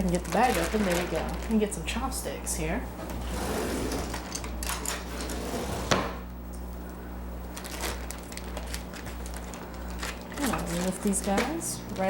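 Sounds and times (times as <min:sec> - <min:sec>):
plastic bag rustling: 0:00.0 - 0:02.2, 0:07.4 - 0:12.0.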